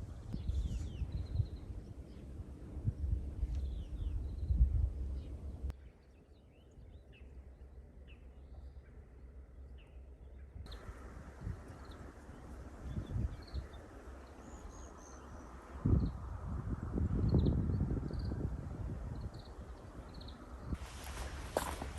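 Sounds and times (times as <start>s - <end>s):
low wind rumble: 0.0s - 5.8s, 6.8s - 21.9s
small birds chirping: 0.2s - 2.3s, 2.9s - 16.3s, 17.1s - 21.9s
steady hiss: 20.7s - 21.9s.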